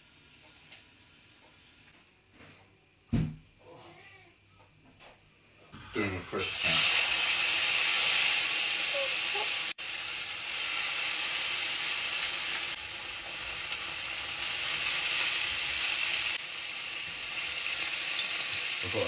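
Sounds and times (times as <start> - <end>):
food sizzling in a frying pan: 5.8 - 19.0.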